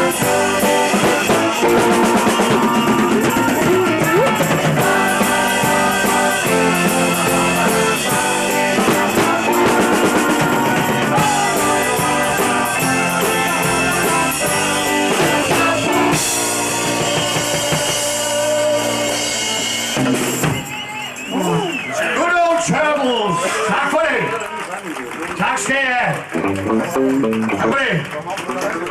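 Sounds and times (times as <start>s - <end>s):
live rock band playing: 0.0s - 21.6s, 26.3s - 27.6s.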